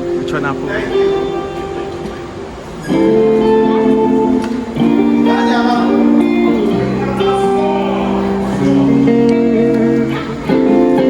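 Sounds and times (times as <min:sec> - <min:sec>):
guitar: 0:00.0 - 0:11.0
live band playing held chords: 0:00.0 - 0:11.0.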